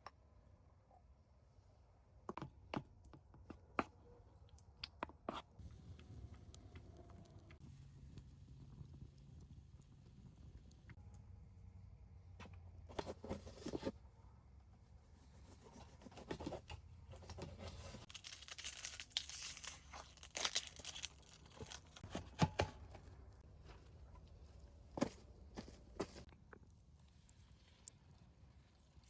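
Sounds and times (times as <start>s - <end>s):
packaging crinkling and tearing: 17.7s - 22.2s.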